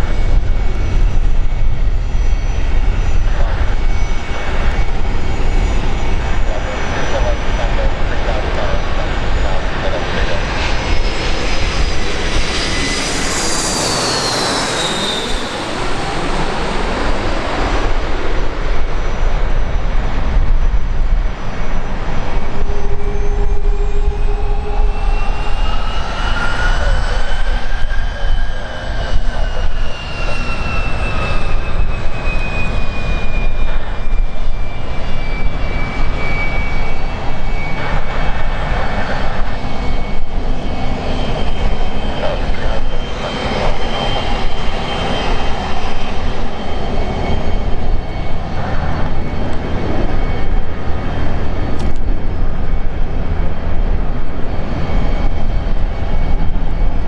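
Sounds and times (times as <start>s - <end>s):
high engine whine: 0.0s - 57.0s
jet engines roaring: 0.0s - 57.0s.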